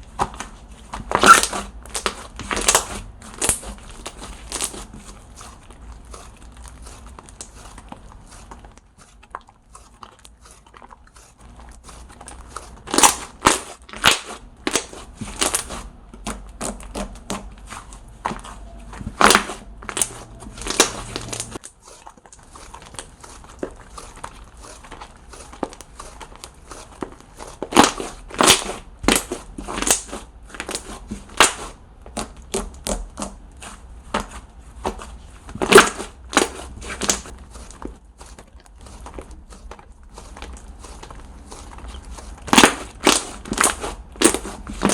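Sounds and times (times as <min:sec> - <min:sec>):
slime squished by hand: 0:00.0 - 0:44.9
slime clicking and popping: 0:12.2 - 0:17.6, 0:27.6 - 0:33.4, 0:35.5 - 0:37.7, 0:42.4 - 0:44.9.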